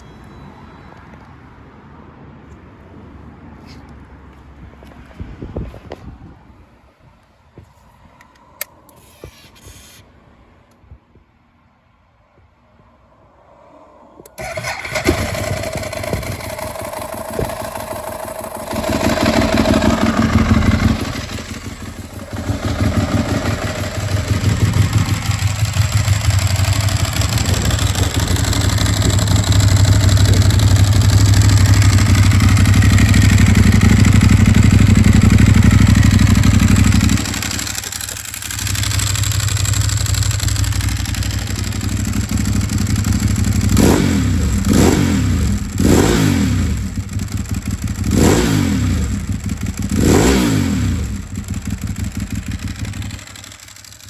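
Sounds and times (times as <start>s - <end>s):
motorcycle engine revving: 14.4s - 54.0s.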